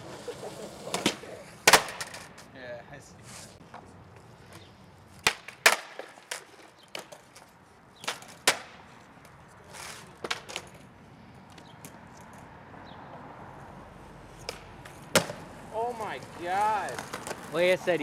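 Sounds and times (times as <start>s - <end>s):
skateboard clacking on ground: 0.0s - 2.5s, 3.6s - 10.9s, 14.3s - 18.0s.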